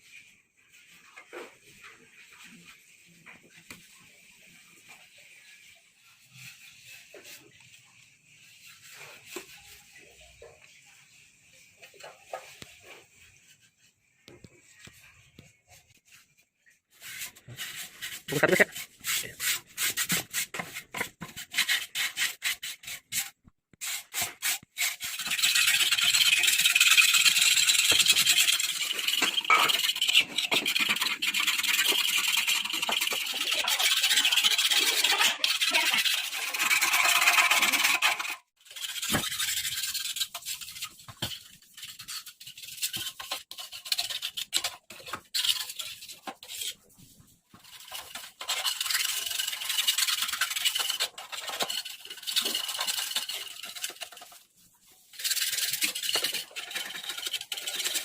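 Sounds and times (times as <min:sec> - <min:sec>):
abrasive rubbing and scraping: 0:24.3 - 0:58.0.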